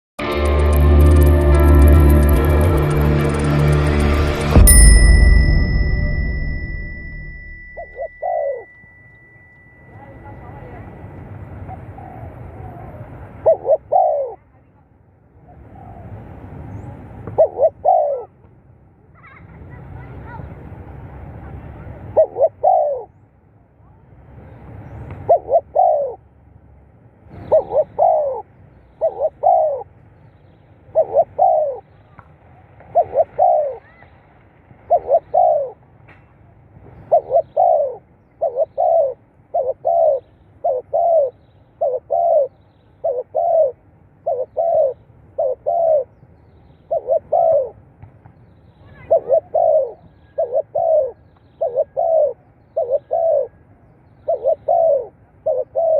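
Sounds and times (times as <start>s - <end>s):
dove cooing: 7.8s - 8.8s, 11.6s - 14.4s, 17.4s - 18.3s, 22.0s - 23.1s, 25.2s - 26.2s, 27.3s - 29.9s, 30.9s - 31.9s, 32.9s - 34.0s, 34.9s - 35.8s, 36.9s - 46.2s, 46.9s - 47.8s, 48.8s - 53.6s, 54.2s - 55.9s.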